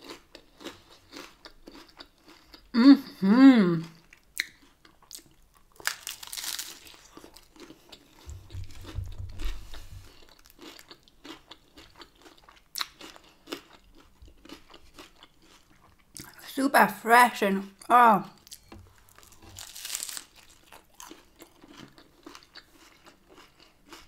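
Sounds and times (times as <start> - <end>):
chewing crisp tortilla: 0.0 - 16.4, 18.3 - 24.0.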